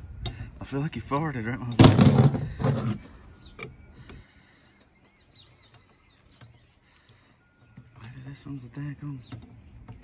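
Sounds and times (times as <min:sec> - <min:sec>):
small bird chirping: 0:03.2 - 0:10.0.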